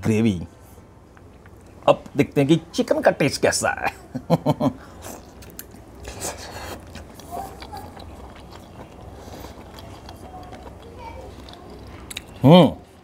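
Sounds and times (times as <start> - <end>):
person eating: 4.8 - 13.0.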